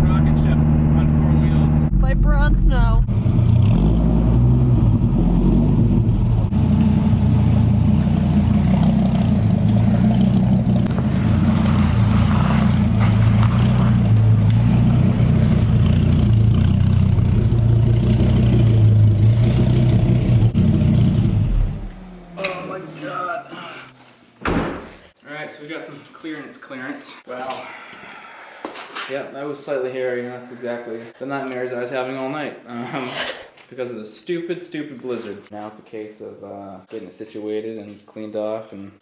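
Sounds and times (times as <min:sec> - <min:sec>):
car engine running at low revs: 0:00.0 - 0:22.4.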